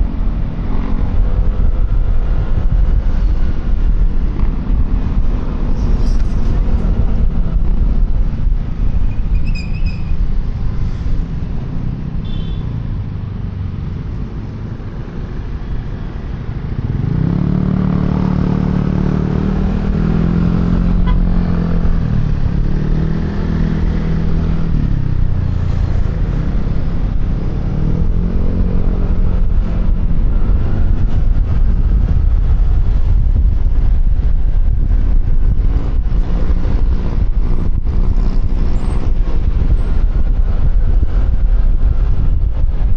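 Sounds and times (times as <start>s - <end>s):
wind and road noise: 0.0s - 42.9s.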